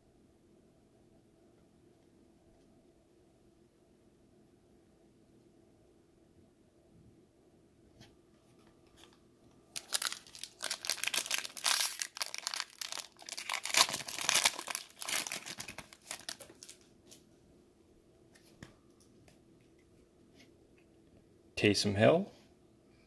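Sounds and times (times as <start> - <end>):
plastic wrapper tearing and crinkling: 9.0 - 16.9.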